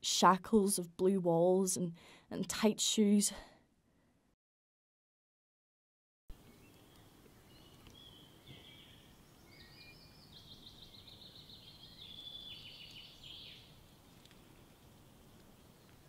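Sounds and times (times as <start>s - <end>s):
low steady background noise: 6.3s - 16.0s
high bird chirps: 6.5s - 13.8s.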